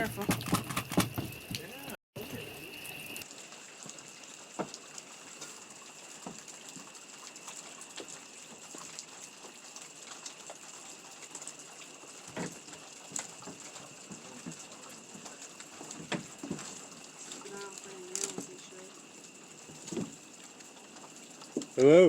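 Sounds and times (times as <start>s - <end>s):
footsteps on wooden boards: 0.0s - 1.7s, 12.3s - 17.0s, 19.7s - 20.2s.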